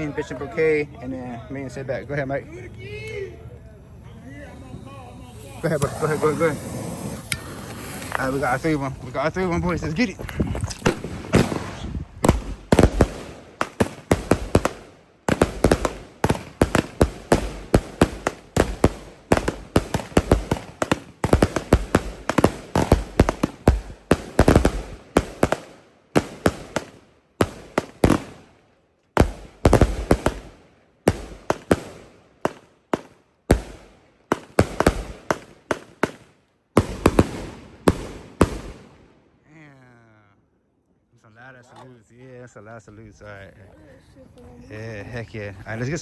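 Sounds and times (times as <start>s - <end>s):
firework launch thumps: 5.6s - 9.1s, 10.2s - 25.6s
loud firework salute bangs: 10.8s - 28.6s, 29.2s - 39.1s.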